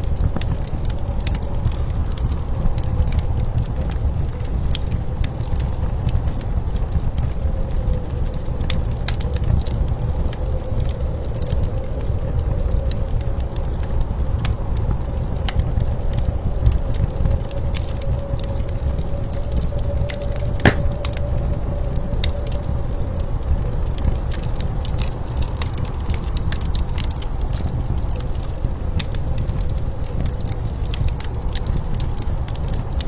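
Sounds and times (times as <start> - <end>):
wood fire crackling and popping: 20.7 - 21.1.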